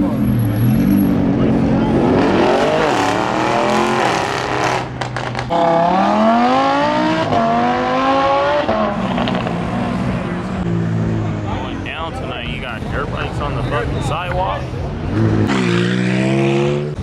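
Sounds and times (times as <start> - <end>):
car engine revving: 0.0 - 17.0
exhaust pops: 4.6 - 5.7.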